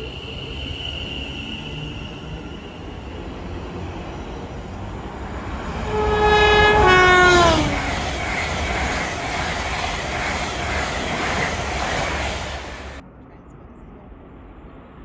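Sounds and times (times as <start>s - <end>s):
train rumbling: 0.0s - 13.1s
train horn: 5.5s - 8.0s.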